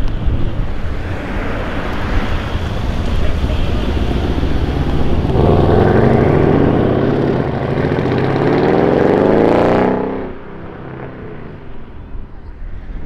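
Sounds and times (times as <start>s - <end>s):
car engine accelerating: 1.0s - 11.5s.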